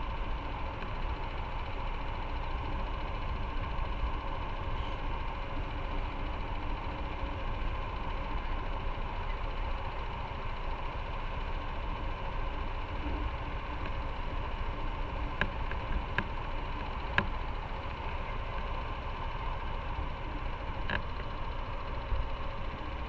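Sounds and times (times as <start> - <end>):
motorcycle engine idling: 0.1 - 23.0.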